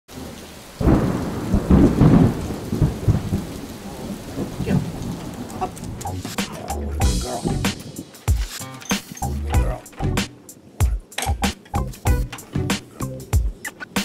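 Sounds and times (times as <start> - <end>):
rain hiss: 0.1 - 14.0
thunder: 0.8 - 6.0.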